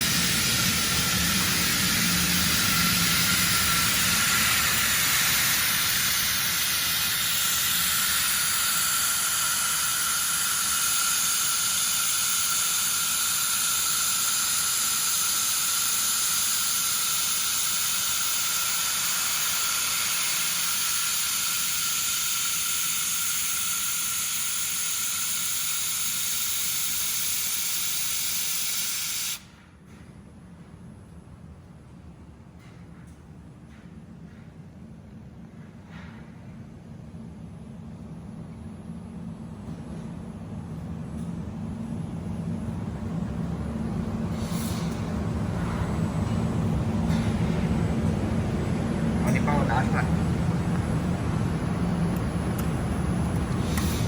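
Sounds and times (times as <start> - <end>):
laser welding machine hissing: 0.0 - 29.5, 44.2 - 45.8, 51.9 - 54.0.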